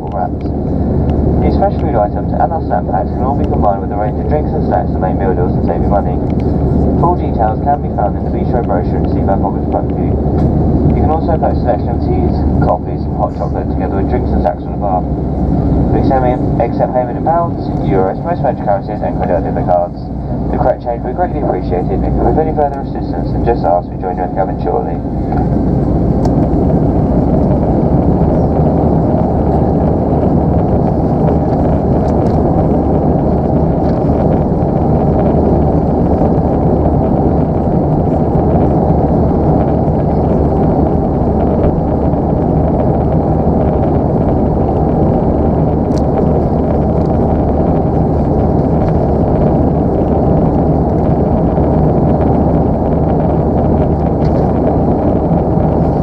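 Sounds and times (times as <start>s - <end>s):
airplane cabin rumble: 0.0s - 56.0s.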